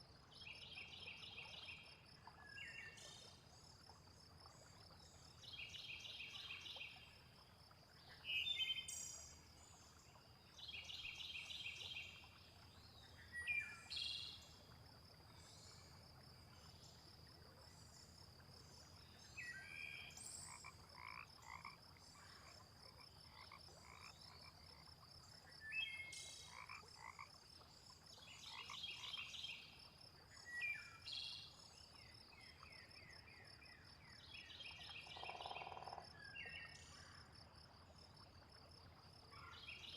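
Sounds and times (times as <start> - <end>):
frogs croaking: 11.7 - 31.1, 34.7 - 39.8.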